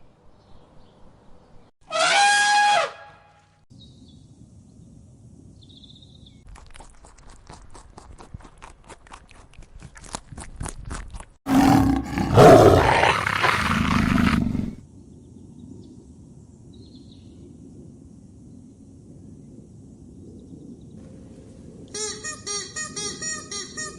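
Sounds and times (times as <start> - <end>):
large animal roaring: 11.5 - 14.8.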